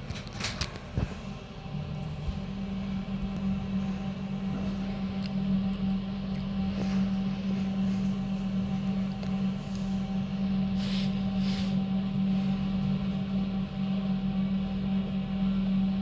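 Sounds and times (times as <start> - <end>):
elevator low hum: 0.0 - 16.0
soft hisses: 10.8 - 11.9.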